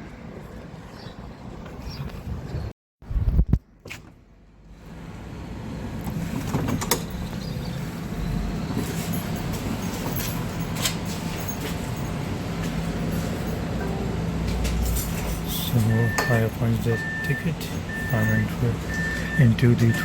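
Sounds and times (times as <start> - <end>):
tram rumbling: 4.9 - 20.0.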